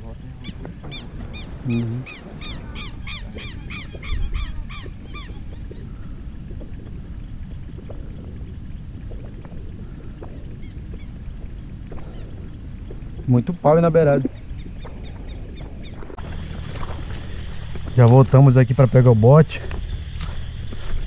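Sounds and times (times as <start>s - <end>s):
steady low rumble: 0.0s - 21.0s
bird calling shrilly: 0.4s - 6.2s, 12.0s - 12.5s.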